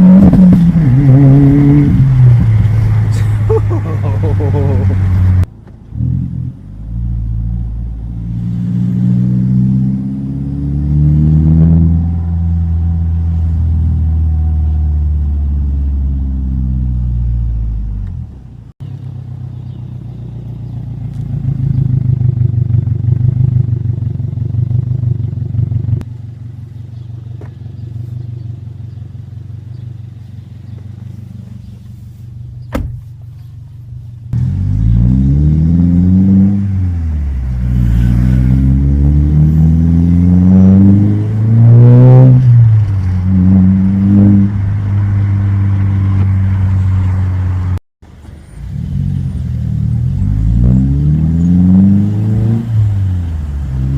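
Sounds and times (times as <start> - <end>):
car engine revving: 0.0 - 18.2, 34.3 - 47.8, 48.4 - 53.9.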